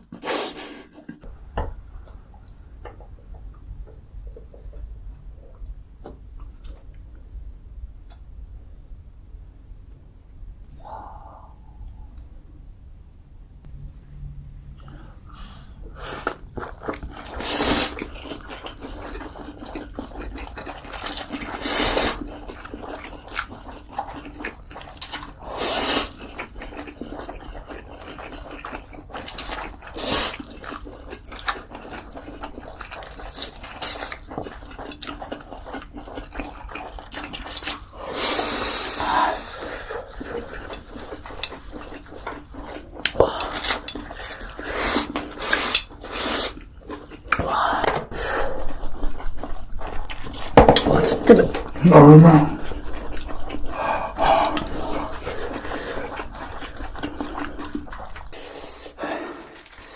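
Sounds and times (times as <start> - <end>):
wet chewing and smacking: 16.2 - 38.0, 39.9 - 58.4
loud slurp: 17.1 - 18.2, 21.0 - 22.4, 37.5 - 41.4, 51.5 - 59.9.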